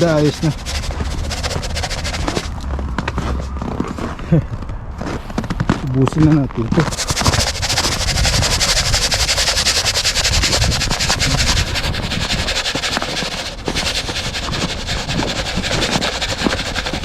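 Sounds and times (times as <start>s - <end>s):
salt granules pouring onto snow: 0.0s - 2.5s, 6.8s - 17.0s.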